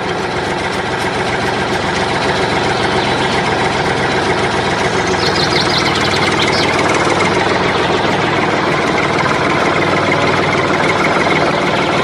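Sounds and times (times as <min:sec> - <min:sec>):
tractor engine idling: 0:00.0 - 0:12.0
faint high chirps: 0:02.2 - 0:08.4.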